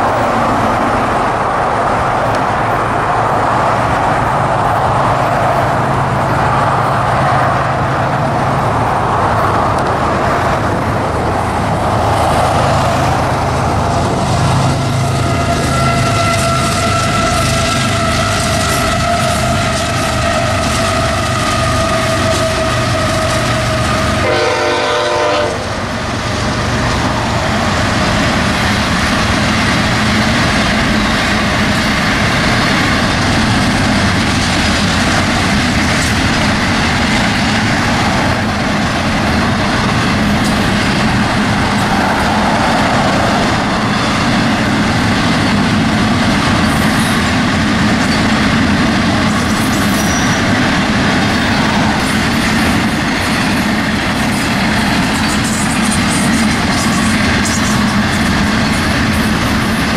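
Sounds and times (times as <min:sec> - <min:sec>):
train wheels clickety-clack: 0:00.0 - 0:59.9
locomotive horn blast: 0:14.4 - 0:25.9.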